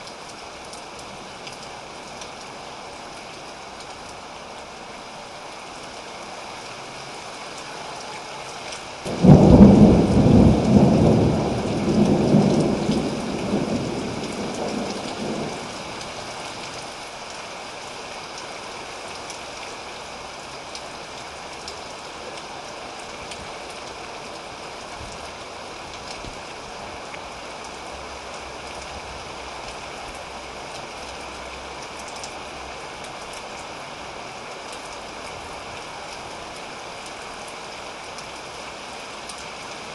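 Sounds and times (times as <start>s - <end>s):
steady rain: 0.0s - 39.9s
close thunderclap rolling: 9.1s - 16.1s.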